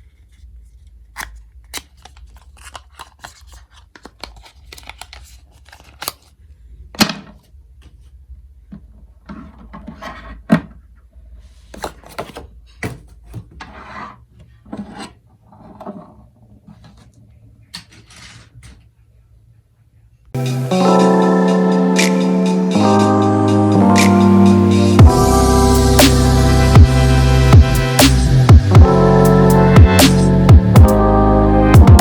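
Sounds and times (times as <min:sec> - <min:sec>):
packaging rustling: 0:01.2 - 0:06.4.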